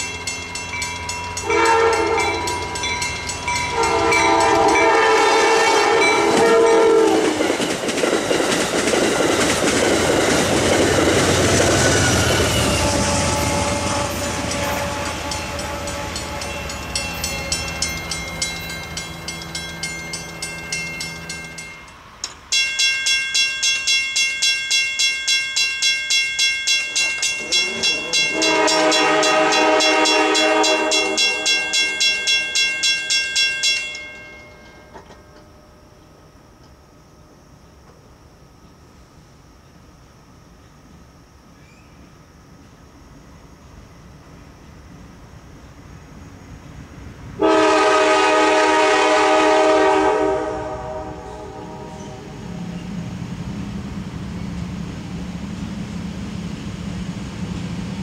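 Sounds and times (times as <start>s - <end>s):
bell ringing: 0.0s - 4.9s, 14.3s - 35.9s
train passing: 0.0s - 58.0s
locomotive horn blasts: 1.4s - 2.9s, 3.7s - 7.3s, 12.4s - 17.5s, 27.6s - 31.9s, 47.4s - 52.6s.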